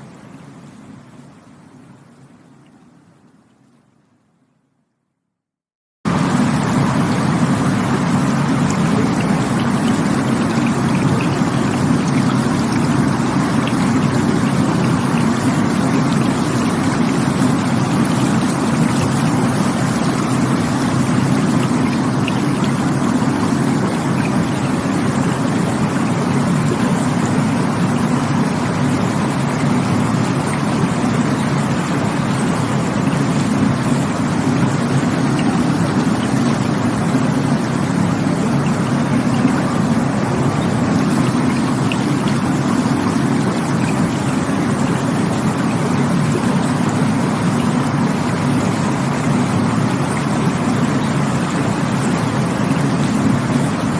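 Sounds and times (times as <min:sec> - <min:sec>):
rushing water: 0:00.0 - 0:04.2, 0:06.1 - 0:53.9.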